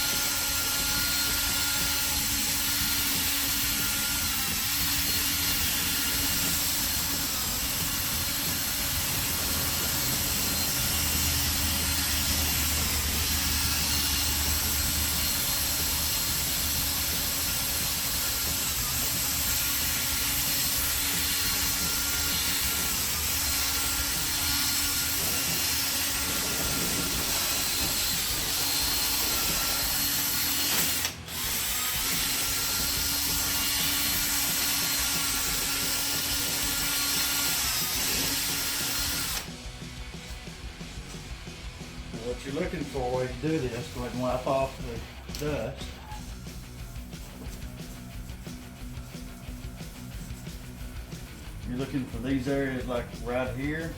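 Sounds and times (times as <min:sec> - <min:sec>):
drill motor whine: 0:00.0 - 0:39.6.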